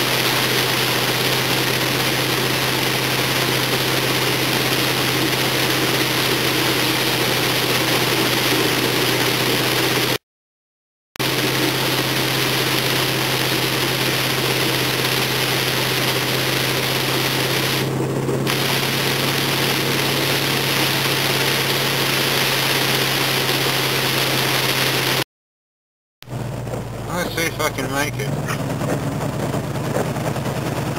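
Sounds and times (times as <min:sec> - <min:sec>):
car engine humming: 0:00.0 - 0:10.2, 0:11.2 - 0:25.2, 0:26.3 - 0:30.9
water spray rushing: 0:00.0 - 0:10.2, 0:11.2 - 0:17.9, 0:18.5 - 0:25.2.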